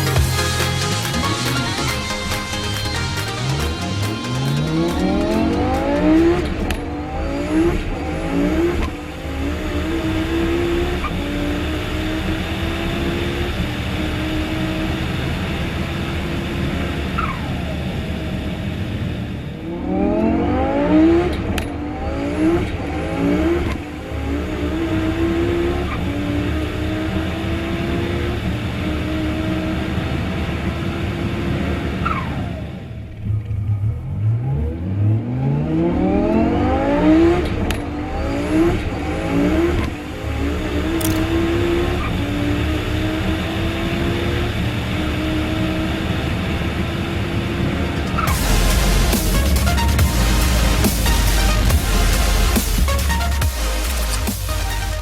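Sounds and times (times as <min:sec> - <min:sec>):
electronic music with heavy beat: 0:00.0 - 0:10.2, 0:47.9 - 0:55.0
sports car engine at full throttle: 0:00.0 - 0:55.0.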